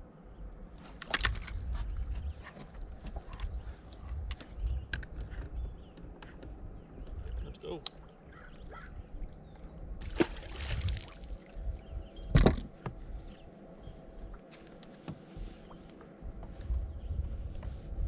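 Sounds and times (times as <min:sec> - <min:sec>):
water splash: 0:10.0 - 0:11.7.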